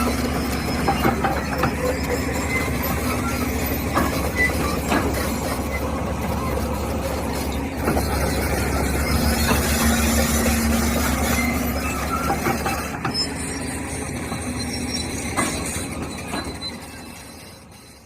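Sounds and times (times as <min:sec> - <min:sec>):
heavy machinery engine rumble: 0:00.0 - 0:18.0
metallic clanks and squeaks: 0:00.0 - 0:18.0.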